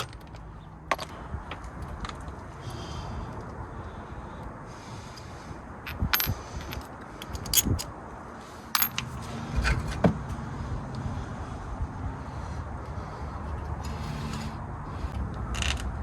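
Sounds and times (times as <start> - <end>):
metal tools clinking: 5.9 - 7.9, 8.8 - 9.1.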